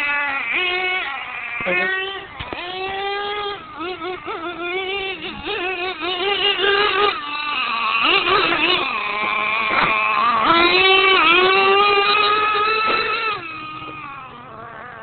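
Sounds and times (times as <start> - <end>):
small engine high-pitched whine: 0.0 - 15.0.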